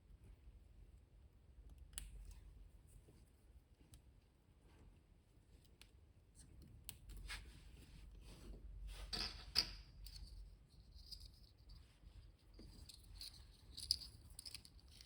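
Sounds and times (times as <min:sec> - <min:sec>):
soft scraping and rustling: 0:06.3 - 0:09.4, 0:10.3 - 0:15.0.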